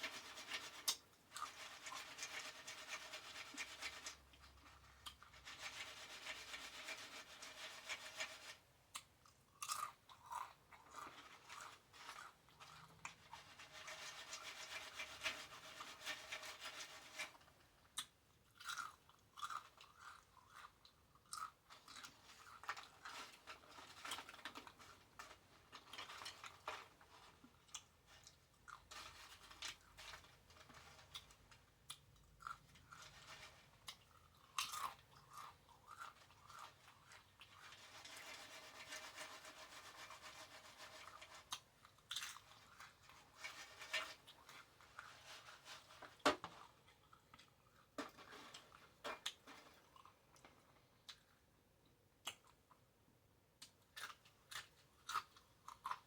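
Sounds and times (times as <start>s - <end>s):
chewing close-up: 8.9s - 13.2s, 18.0s - 23.0s, 53.6s - 56.0s.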